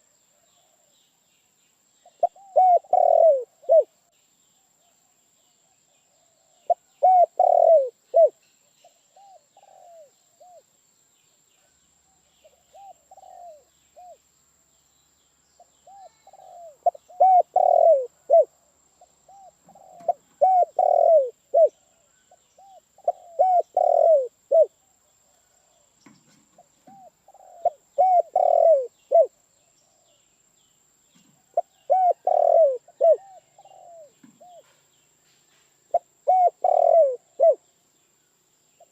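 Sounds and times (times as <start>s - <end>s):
faint high-pitched whine: 0.0s - 38.9s
dove cooing: 2.2s - 4.0s, 6.6s - 8.4s, 9.1s - 10.6s, 12.4s - 14.2s, 15.8s - 18.5s, 19.3s - 25.5s, 26.5s - 29.4s, 31.4s - 34.8s, 35.9s - 37.6s.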